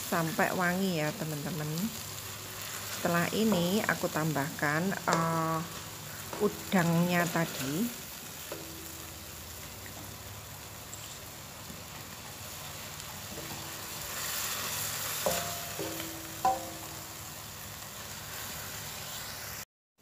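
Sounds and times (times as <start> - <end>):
spice paste sizzling in oil: 0.0 - 19.6
spatula scraping wok: 1.8 - 19.6
spatula knocking on wok: 8.5 - 9.2, 13.3 - 14.0, 15.2 - 17.2.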